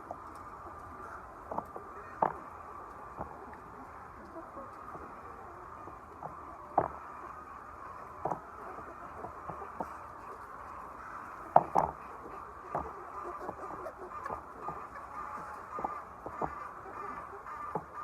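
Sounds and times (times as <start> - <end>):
hens clucking: 0.0 - 18.0
sharp taps and knocks: 1.5 - 2.4, 6.2 - 7.0, 8.2 - 8.4, 11.6 - 12.0, 12.7 - 12.9, 15.8 - 16.6.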